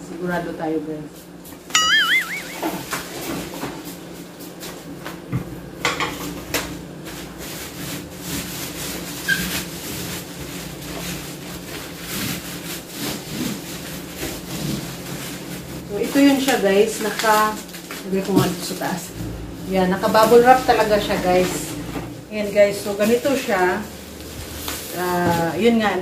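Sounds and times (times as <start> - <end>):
plastic rustling and rubbing: 7.0 - 26.0.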